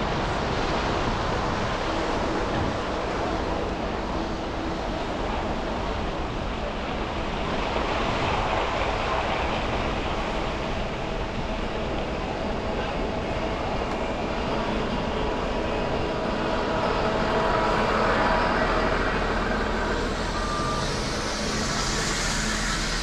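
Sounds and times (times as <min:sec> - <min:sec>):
traffic tyres on wet streets: 0:00.0 - 0:23.0
wind on microphone: 0:00.0 - 0:23.0
faint steady tone: 0:14.6 - 0:23.0.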